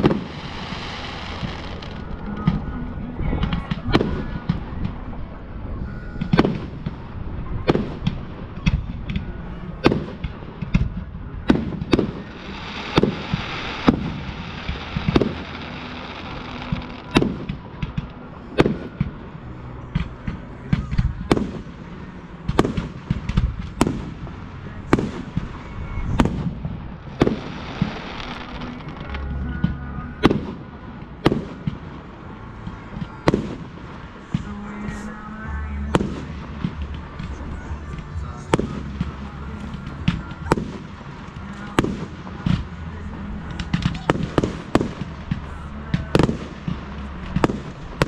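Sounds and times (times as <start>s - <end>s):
hissing crackle: 0.0s - 2.6s, 11.5s - 19.5s, 21.3s - 29.4s
fireworks bangs: 0.0s - 5.5s, 6.1s - 48.0s.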